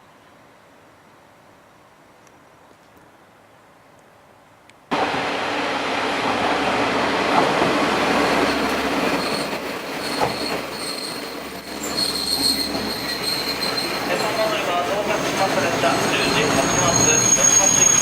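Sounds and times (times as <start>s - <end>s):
train wheels and engine rumble: 0.2s - 18.0s
high wheel squeal: 9.1s - 18.0s.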